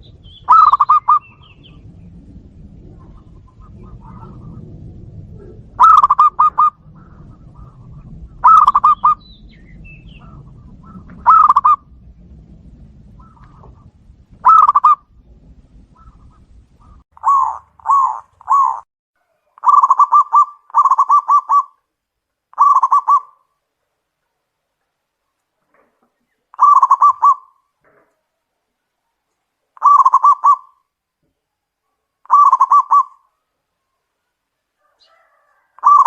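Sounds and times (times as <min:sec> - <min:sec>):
dove cooing: 0:00.4 - 0:01.8, 0:02.8 - 0:09.2, 0:10.0 - 0:11.9, 0:13.1 - 0:15.0, 0:15.9 - 0:18.8, 0:19.5 - 0:21.8, 0:22.5 - 0:23.4, 0:26.5 - 0:27.6, 0:29.8 - 0:30.8, 0:32.2 - 0:33.3, 0:34.8 - 0:36.0.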